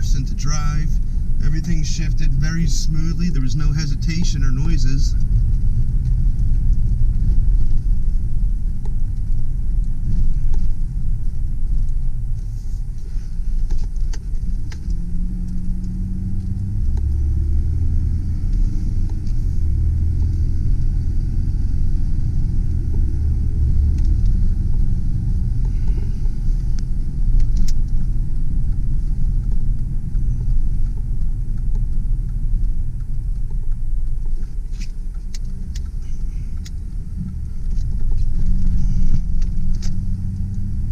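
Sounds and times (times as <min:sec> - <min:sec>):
truck engine and road rumble: 0:00.0 - 0:40.9.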